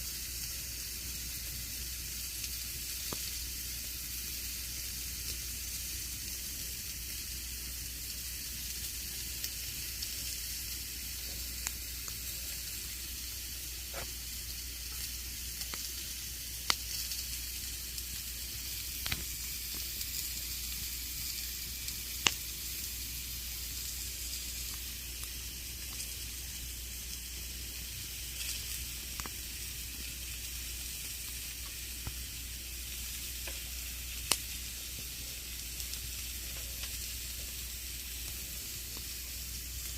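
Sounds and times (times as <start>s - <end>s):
campfire crackling and popping: 0.4s - 7.2s, 7.8s - 39.9s.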